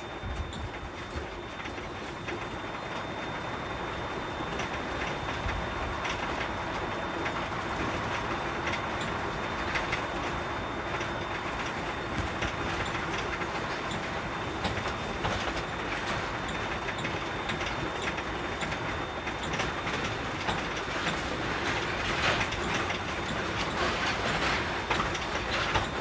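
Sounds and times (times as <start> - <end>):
thin high whine: 0.0 - 20.4
diesel truck engine and road noise: 0.0 - 26.0.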